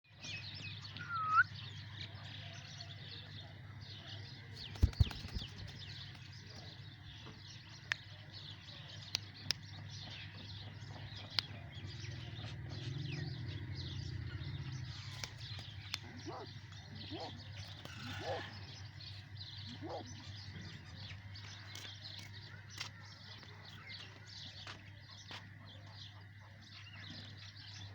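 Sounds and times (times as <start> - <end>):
small birds chirping and twittering: 0.0 - 27.9
loud bird call: 0.9 - 1.6, 16.0 - 18.8.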